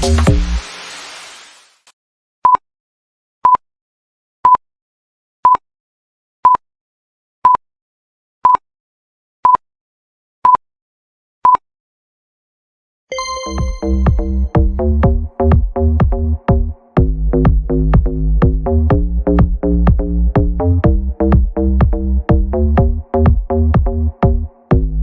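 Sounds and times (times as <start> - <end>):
electronic timer beeps: 13.1 - 14.8.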